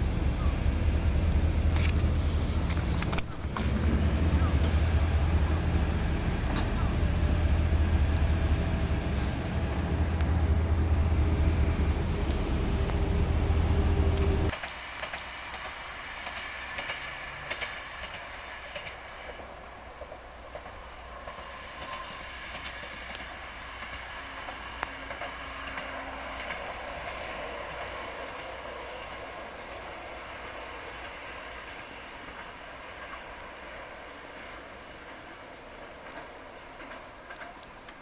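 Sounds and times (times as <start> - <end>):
loud low rumble: 0.0 - 14.5
train wheels clicking on rail joints: 0.0 - 38.0.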